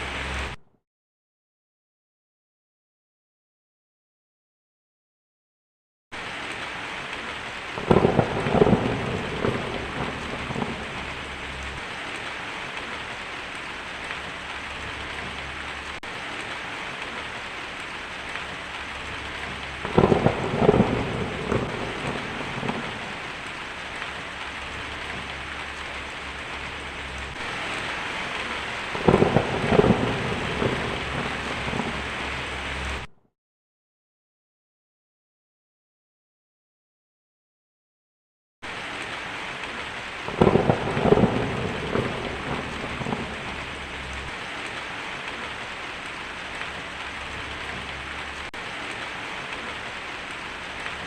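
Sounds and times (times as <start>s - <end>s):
steady rain falling: 0.0s - 0.6s, 6.2s - 33.1s, 38.6s - 51.0s
thunder rolling: 7.6s - 13.2s, 18.2s - 33.1s, 40.2s - 45.4s.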